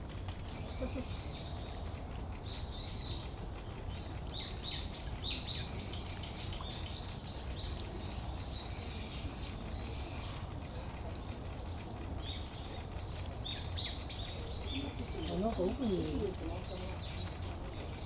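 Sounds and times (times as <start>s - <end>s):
songbirds chirping: 4.2s - 18.0s.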